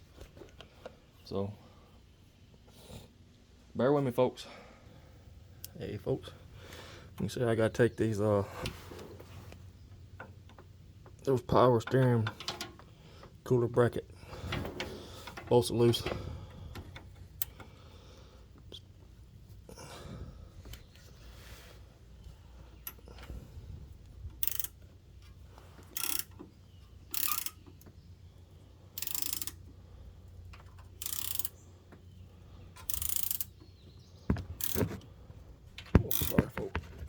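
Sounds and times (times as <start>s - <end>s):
hand ratchet clicking: 24.4s - 24.8s, 25.8s - 26.4s, 27.1s - 27.7s, 29.0s - 29.6s, 30.5s - 31.6s, 32.8s - 33.6s, 34.6s - 34.9s, 36.1s - 36.4s.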